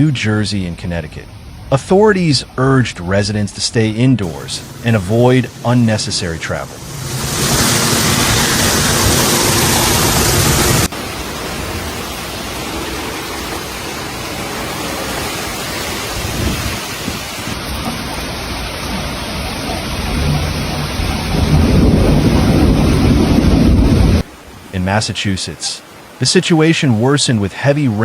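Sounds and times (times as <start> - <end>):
heavy rain falling: 4.2 - 28.0
thunder rumbling: 4.3 - 24.3.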